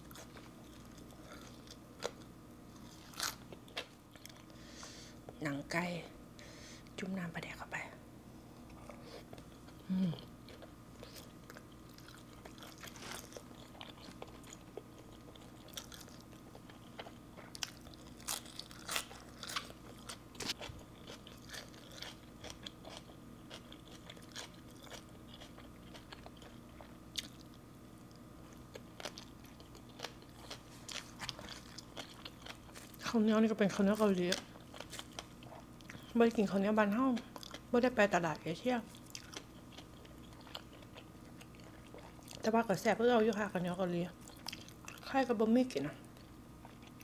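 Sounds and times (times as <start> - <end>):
closed-mouth hum: 0.0 - 18.2
wet chewing crunches: 10.5 - 33.2, 34.0 - 36.4, 38.9 - 42.5, 44.2 - 45.1.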